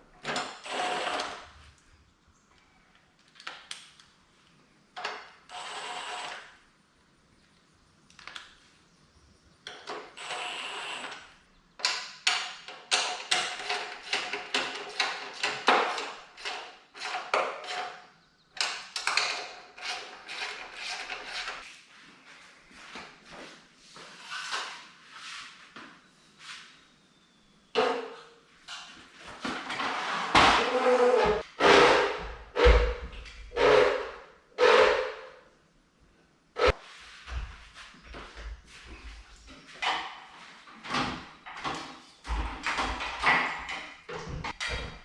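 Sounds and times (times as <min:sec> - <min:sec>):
tools clicking and clattering: 0:18.6 - 0:21.6.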